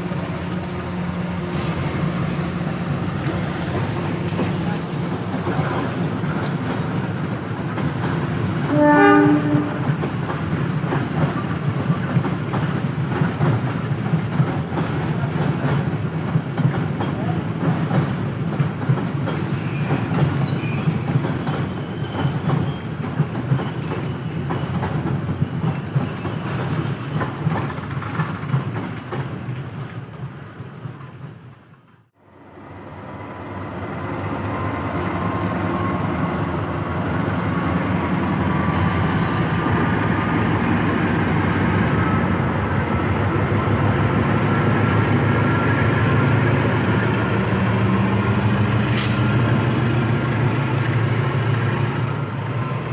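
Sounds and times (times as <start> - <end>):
train rumble: 0.0 - 52.9
train wheels clattering: 1.4 - 31.7.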